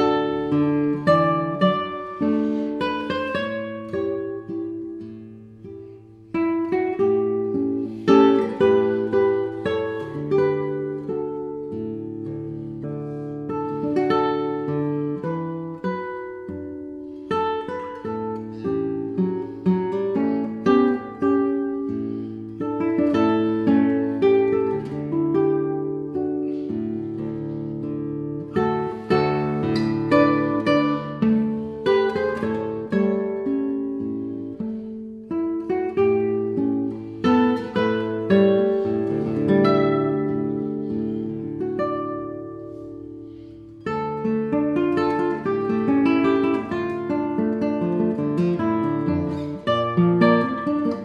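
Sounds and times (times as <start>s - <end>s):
acoustic guitar plucking: 0.0s - 51.0s.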